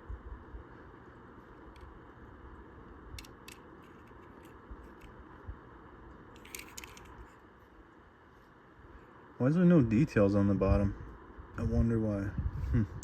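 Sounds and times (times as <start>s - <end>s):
steady low hiss: 0.0s - 13.0s
toy car and packaging rustling: 6.4s - 7.4s.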